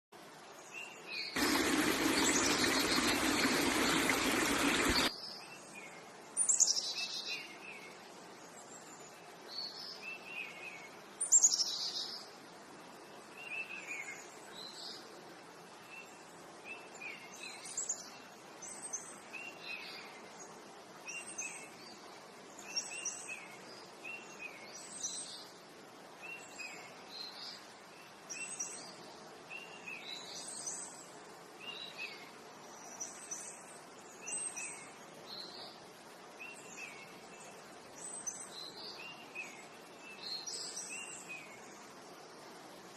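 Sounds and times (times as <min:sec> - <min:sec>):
birds chirping: 0:01.4 - 0:05.1.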